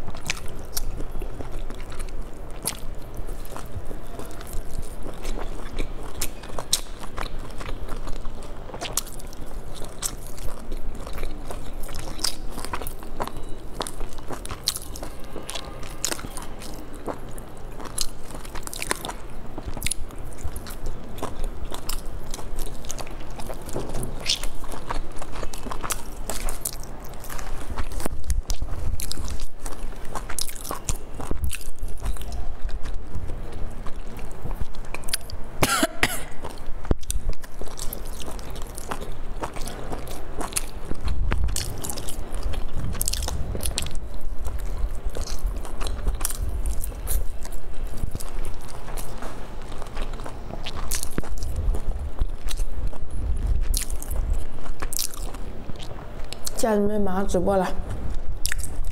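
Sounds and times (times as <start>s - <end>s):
person chewing with wet clicks: 0.0s - 58.9s
cough: 35.6s - 36.4s.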